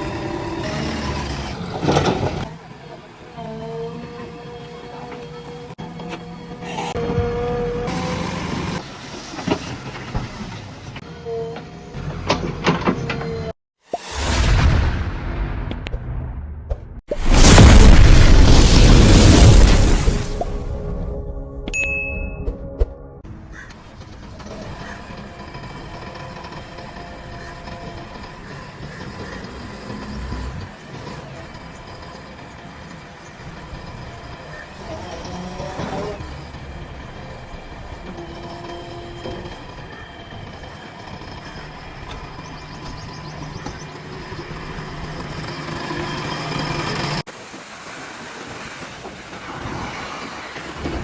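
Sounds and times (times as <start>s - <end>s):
diesel engine running under load: 0.0s - 13.6s, 23.6s - 47.3s.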